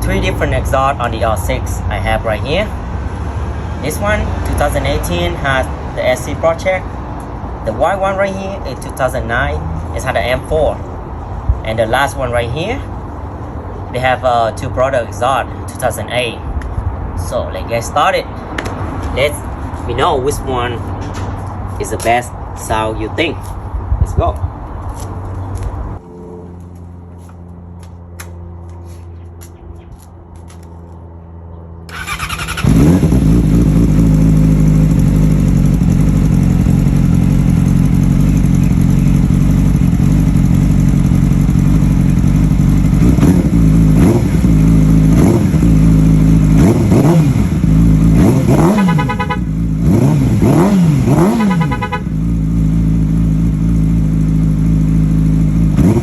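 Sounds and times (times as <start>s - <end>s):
motorcycle engine idling and revving: 0.0s - 56.0s.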